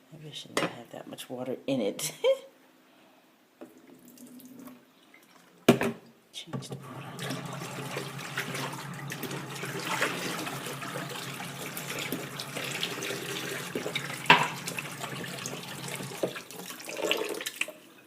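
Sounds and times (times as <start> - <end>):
tap water running and splashing: 6.7 - 17.8.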